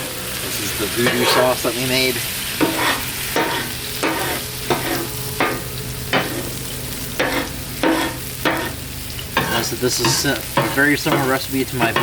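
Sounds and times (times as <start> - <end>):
meat sizzling on a griddle: 0.0 - 12.0
metal tool scraping steel: 2.6 - 6.6, 7.2 - 8.8.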